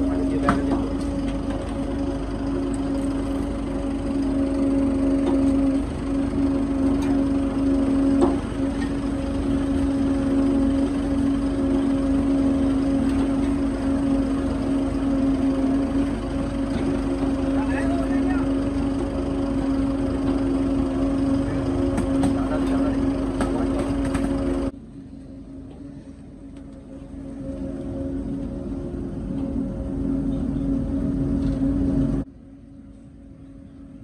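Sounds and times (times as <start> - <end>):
motor humming: 0.0 - 24.8.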